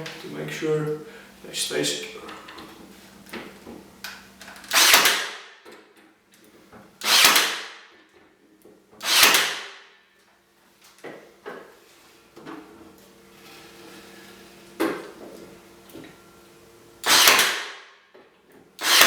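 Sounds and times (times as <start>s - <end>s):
nail gun firing: 4.7s - 5.6s, 7.0s - 7.9s, 9.0s - 9.8s, 17.0s - 17.9s, 18.8s - 19.0s.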